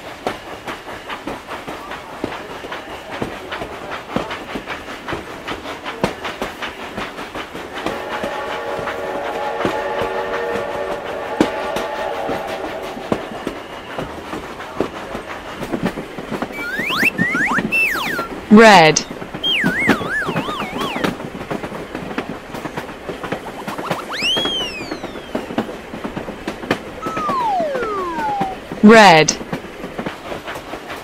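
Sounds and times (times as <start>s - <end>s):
train whistle chord: 7.9s - 13.6s.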